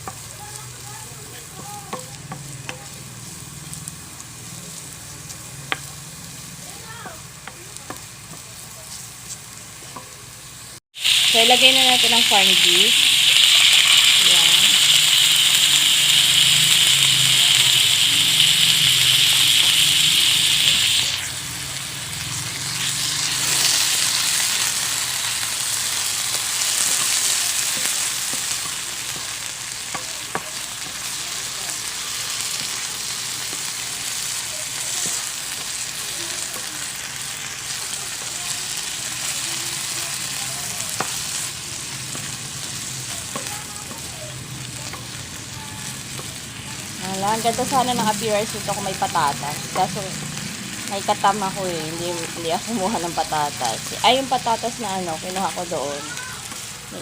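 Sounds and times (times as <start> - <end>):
food sizzling in frying pan: 0.0 - 57.0
spatula tapping pan: 1.4 - 3.0, 7.0 - 8.5, 26.3 - 31.0, 43.1 - 45.3.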